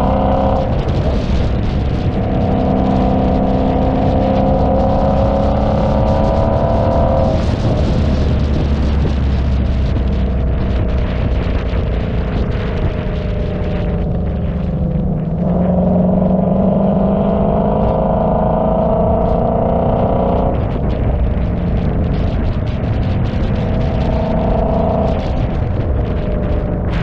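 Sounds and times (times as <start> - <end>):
car engine running: 0.0 - 27.0.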